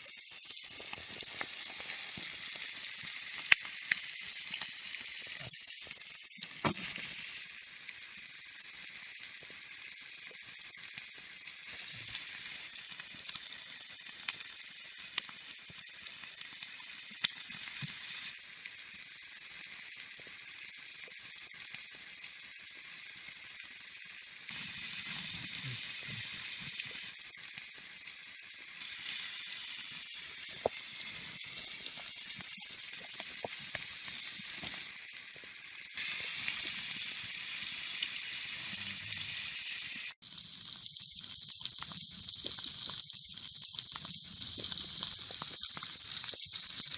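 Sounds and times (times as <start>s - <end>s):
meat sizzling on hot metal: 0.0s - 46.9s
sharp pops and crackles: 0.1s - 7.3s, 10.4s - 19.0s, 24.5s - 38.1s, 40.2s - 46.9s.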